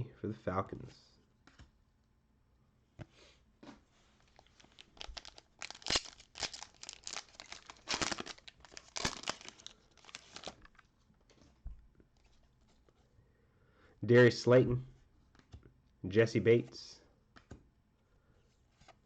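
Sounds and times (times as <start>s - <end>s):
foil wrapper torn and crumpled: 4.3s - 10.8s.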